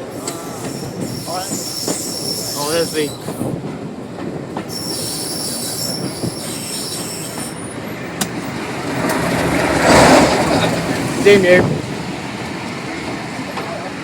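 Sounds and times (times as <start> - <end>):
train wheels rumbling: 0.0 - 14.0
high-pitched wheel squeal: 0.4 - 3.3, 4.7 - 7.8.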